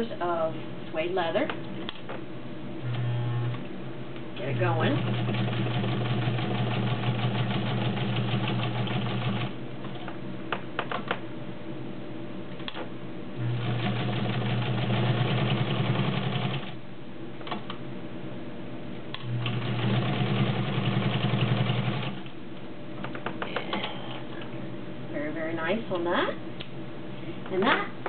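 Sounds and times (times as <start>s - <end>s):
sewing machine stitching: 4.7s - 9.5s, 13.4s - 16.8s, 19.2s - 22.2s.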